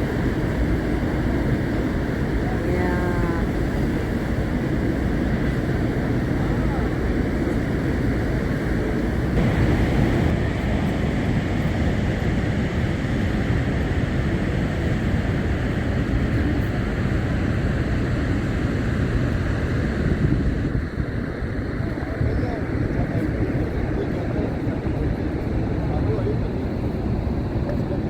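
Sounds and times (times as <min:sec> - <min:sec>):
waterfall roaring: 0:00.0 - 0:10.9
wind buffeting microphone: 0:00.0 - 0:28.0.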